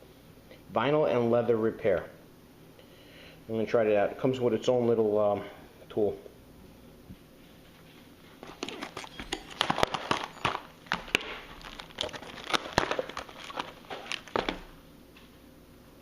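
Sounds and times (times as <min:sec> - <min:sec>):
packaging crinkling: 0:08.3 - 0:14.8.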